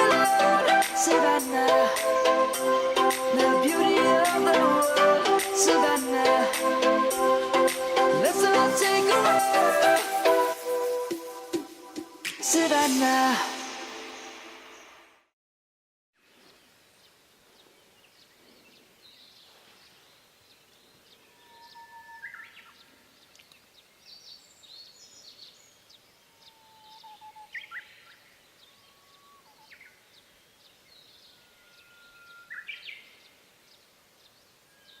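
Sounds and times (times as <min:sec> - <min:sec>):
faint open air hiss: 0:16.2 - 0:35.0
songbirds singing: 0:16.2 - 0:35.0
birds twittering: 0:17.6 - 0:35.0.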